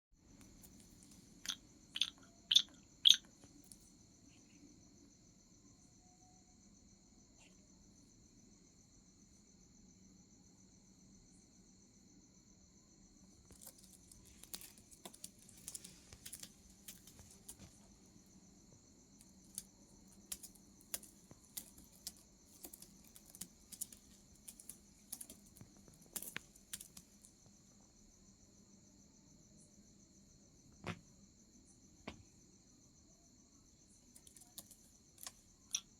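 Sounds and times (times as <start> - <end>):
insect trilling: 0.5 - 4.7, 13.3 - 27.5, 34.1 - 35.9.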